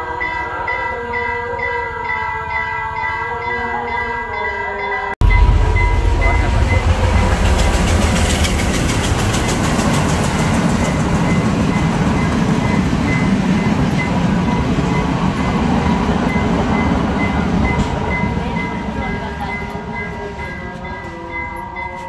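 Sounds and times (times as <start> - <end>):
train rumbling past: 5.2 - 22.0.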